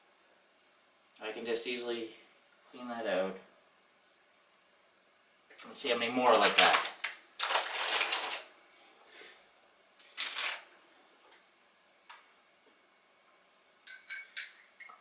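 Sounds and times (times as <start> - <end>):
metal clink ringing: 13.8 - 15.0.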